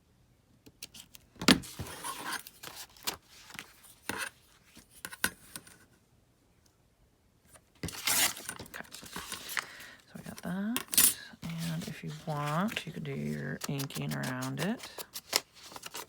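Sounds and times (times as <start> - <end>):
paper rustling and crinkling: 1.6 - 5.0, 7.8 - 16.0.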